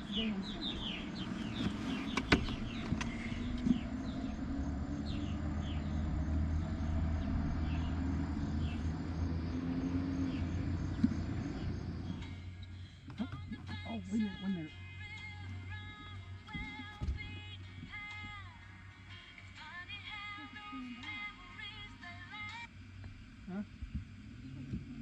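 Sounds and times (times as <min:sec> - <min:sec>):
distant vehicle hum: 0:00.0 - 0:25.0.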